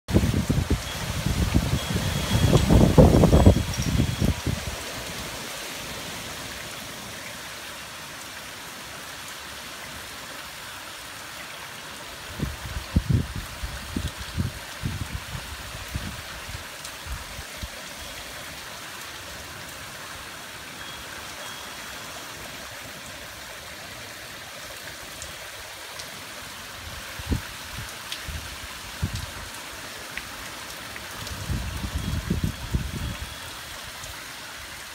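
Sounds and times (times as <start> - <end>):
steady rain: 0.1 - 34.9.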